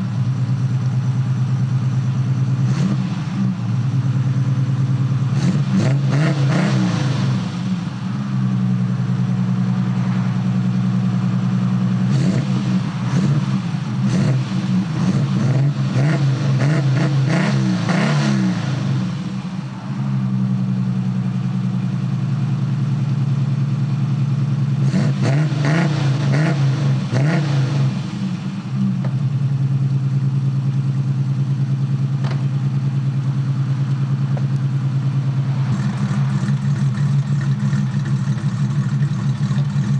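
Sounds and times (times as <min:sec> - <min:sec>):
car engine idling: 0:00.0 - 0:25.2, 0:26.0 - 0:39.9
engine revving in throttle blips: 0:02.2 - 0:22.5, 0:24.6 - 0:39.9.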